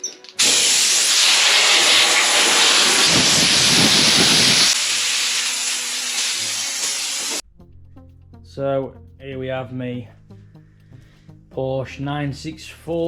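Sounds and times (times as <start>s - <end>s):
compressed air hissing: 0.4s - 7.4s.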